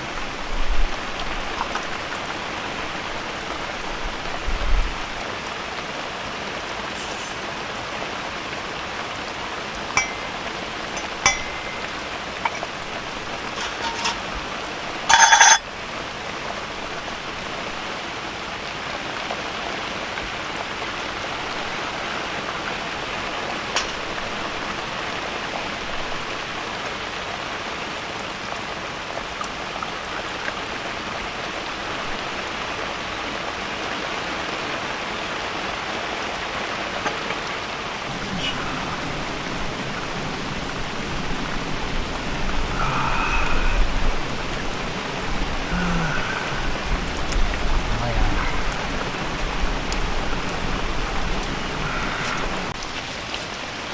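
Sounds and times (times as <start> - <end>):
heavy rain pouring: 0.0 - 53.9
drips tapping: 10.0 - 14.3.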